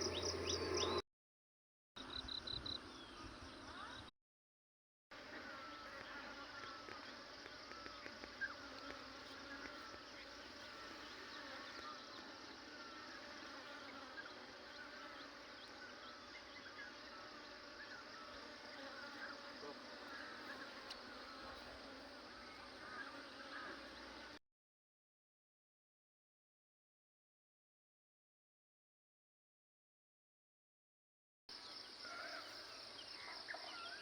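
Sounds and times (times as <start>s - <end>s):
insect buzzing: 0.0s - 1.0s, 5.2s - 24.4s, 31.5s - 34.0s
insect chirps: 0.0s - 1.0s, 2.0s - 4.0s, 31.5s - 34.0s.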